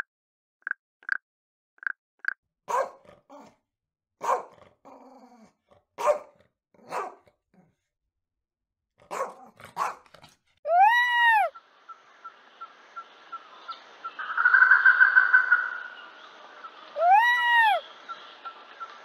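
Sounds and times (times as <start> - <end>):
dog barking: 2.7 - 3.5, 4.2 - 4.6, 6.0 - 7.3, 9.0 - 10.3
frog croaking: 11.9 - 16.7.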